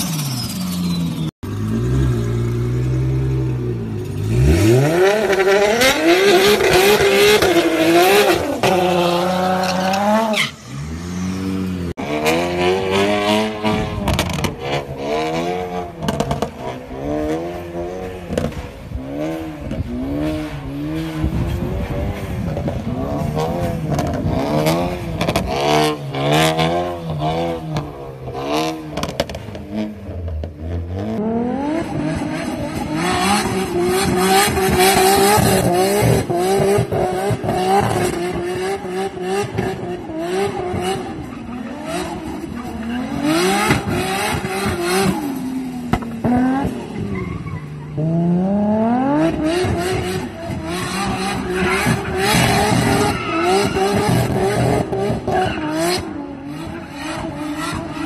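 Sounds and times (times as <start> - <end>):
tyre squeal: 0.0 - 1.3, 8.3 - 11.3, 46.8 - 48.1, 51.1 - 56.1
car engine revving: 1.2 - 58.0.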